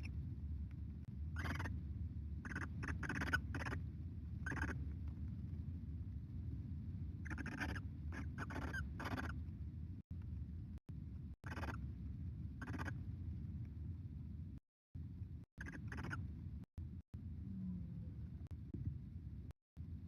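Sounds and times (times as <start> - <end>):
steady low hum: 0.0 - 20.0
owls hissing: 1.4 - 1.7, 2.4 - 3.8, 4.4 - 4.8, 7.2 - 9.4, 11.5 - 11.8, 12.6 - 12.9, 15.6 - 16.2.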